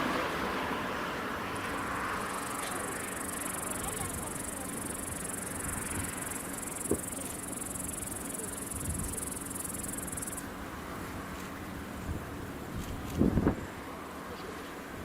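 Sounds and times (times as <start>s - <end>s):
insects chirring: 1.6s - 10.5s.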